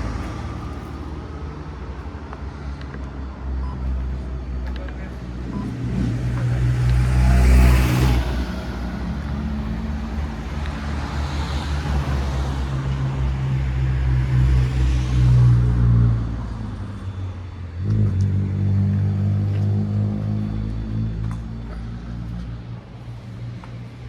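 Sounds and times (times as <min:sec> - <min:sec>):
car engines running: 0:00.0 - 0:24.0
tyre hiss of passing vehicles: 0:05.8 - 0:17.5.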